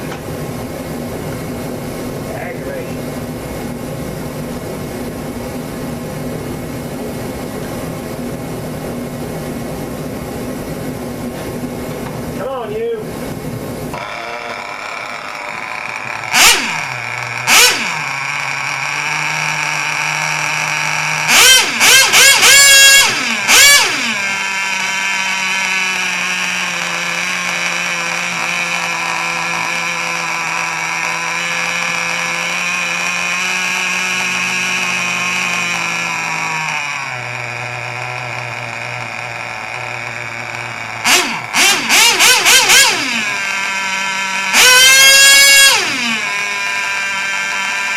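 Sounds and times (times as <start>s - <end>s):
small engine revving: 13.9s - 47.9s.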